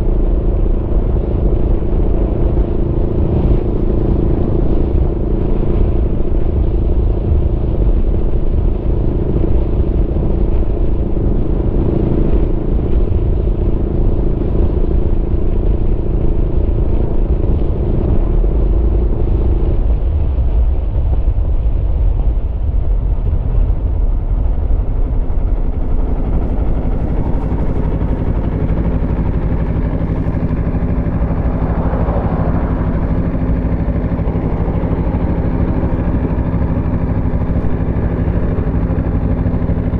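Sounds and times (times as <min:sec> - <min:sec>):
motorcycle engine running: 0:23.0 - 0:39.9.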